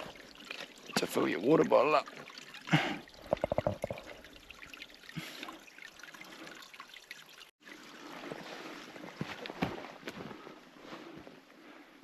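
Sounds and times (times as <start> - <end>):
water trickling from spout: 0.0 - 9.0.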